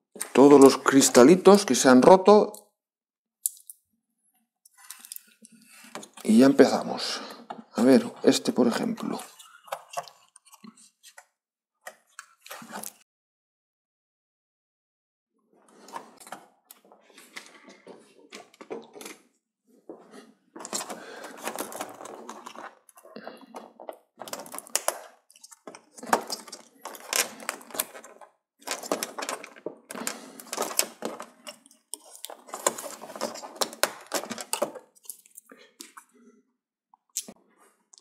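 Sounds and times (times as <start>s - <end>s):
plastic and metal parts clattering: 20.6s - 36.0s.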